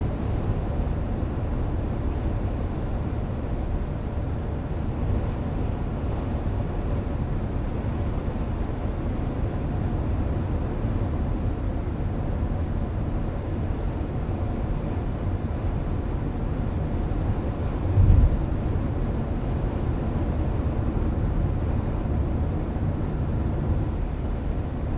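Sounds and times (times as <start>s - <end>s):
car engine and road rumble: 0.0s - 24.9s
brief thump: 17.9s - 18.5s.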